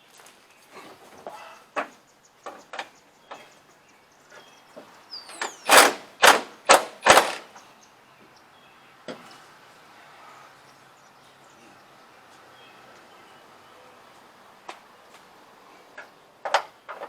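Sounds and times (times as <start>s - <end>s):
impact wrench bursts: 5.3s - 7.6s
tools knocking and clicking: 5.4s - 7.5s.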